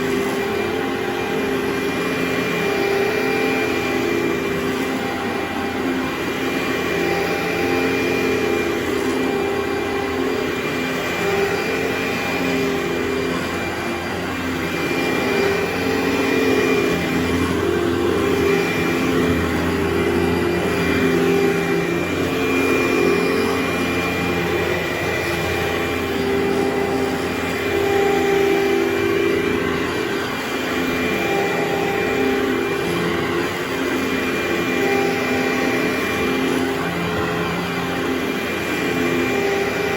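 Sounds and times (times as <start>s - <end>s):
carpet cleaner suction motor: 0.0s - 39.9s.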